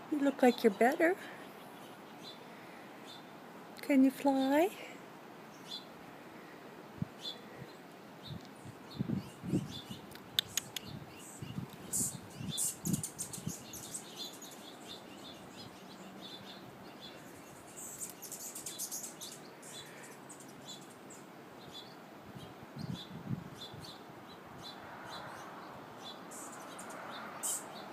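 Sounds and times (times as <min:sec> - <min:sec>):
goldfinch high chirps: 0:09.2 - 0:22.0.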